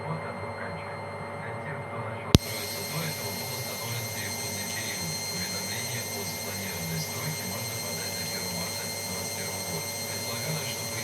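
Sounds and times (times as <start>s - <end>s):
faint ticking: 2.4s - 11.0s
washing machine running: 2.4s - 11.0s.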